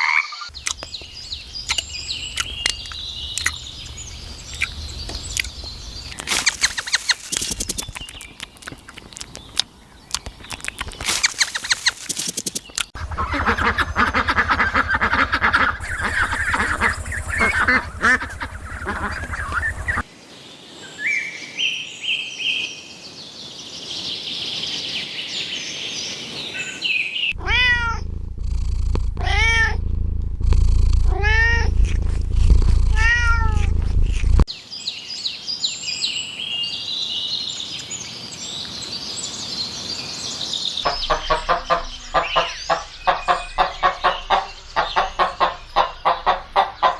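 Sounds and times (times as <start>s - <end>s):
low rumble: 0.5s - 6.2s, 13.0s - 20.0s, 27.4s - 34.5s, 40.9s - 46.6s
high chirping: 0.5s - 8.6s, 10.1s - 20.0s, 40.8s - 46.9s
cat meowing: 27.4s - 28.1s, 29.2s - 29.8s, 31.1s - 31.9s, 32.8s - 33.8s.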